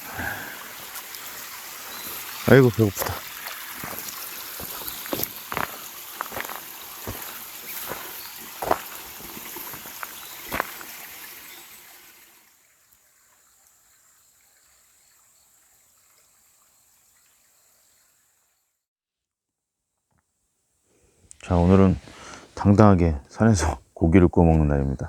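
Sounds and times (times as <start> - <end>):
faint hiss: 0.0 - 18.6, 20.7 - 25.0
stream trickling: 0.0 - 18.8.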